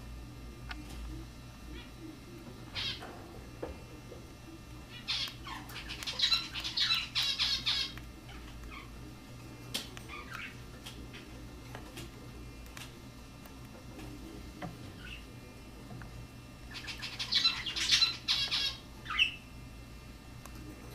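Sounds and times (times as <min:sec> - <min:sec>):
cockatiel squawking: 0:04.9 - 0:08.9, 0:16.7 - 0:19.4.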